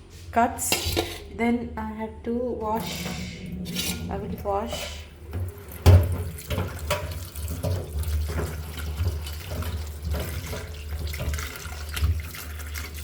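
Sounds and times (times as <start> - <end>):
tap running into sink: 5.3 - 12.4.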